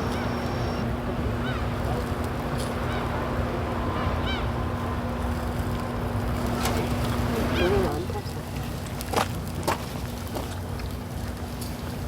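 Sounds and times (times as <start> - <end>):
steady low hum: 0.0 - 7.9.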